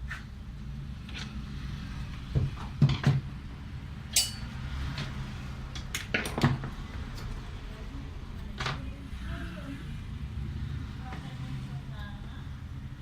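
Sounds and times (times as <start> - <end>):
metallic clinks of tools: 4.2 - 4.5.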